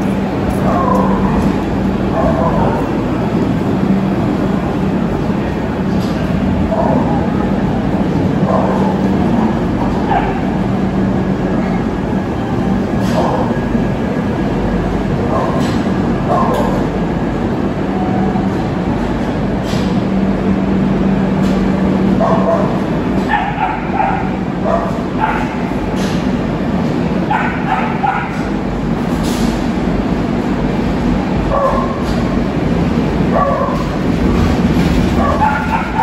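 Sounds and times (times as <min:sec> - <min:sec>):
train wheels rumbling on rails: 0:00.0 - 0:36.0
dog barking: 0:00.6 - 0:01.4, 0:02.1 - 0:02.9, 0:08.5 - 0:09.0, 0:10.1 - 0:10.5, 0:15.2 - 0:15.7, 0:16.3 - 0:16.8, 0:22.2 - 0:25.7, 0:27.3 - 0:28.5, 0:31.5 - 0:32.0, 0:33.3 - 0:33.9, 0:35.2 - 0:36.0.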